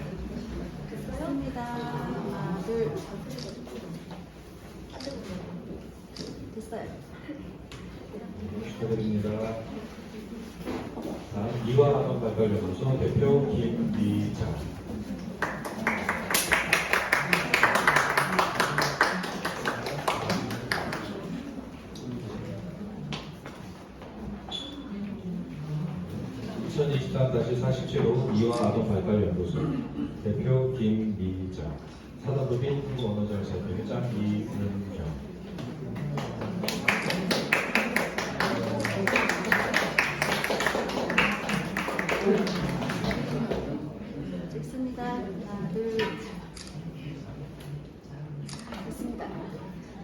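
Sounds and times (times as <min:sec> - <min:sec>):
group clapping hands: 0:15.4 - 0:21.2, 0:36.2 - 0:43.5
audience applauding: 0:15.4 - 0:21.3, 0:36.4 - 0:43.5.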